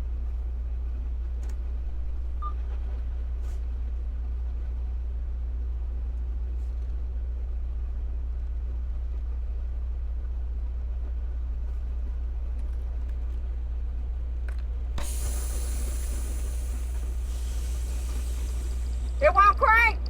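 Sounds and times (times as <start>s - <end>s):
diesel truck engine drone: 0.0s - 20.0s
loud air hiss: 15.0s - 19.6s.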